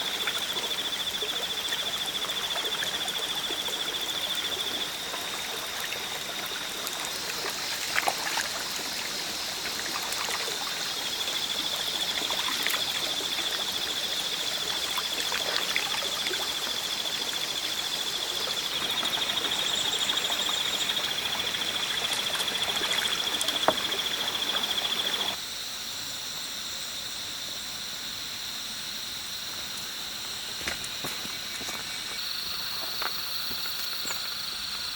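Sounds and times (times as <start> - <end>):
stream trickling: 0.0 - 25.4, 29.5 - 34.9.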